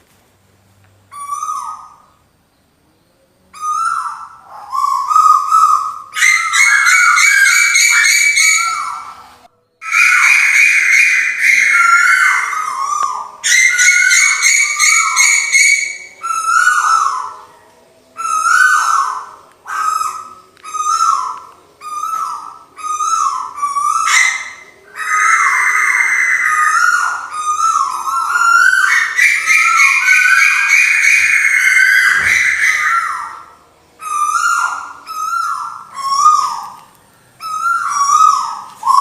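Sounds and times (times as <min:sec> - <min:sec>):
high steady bird trill: 0:01.1 - 0:39.0
falling whistled bird notes: 0:18.2 - 0:36.8, 0:37.4 - 0:39.0.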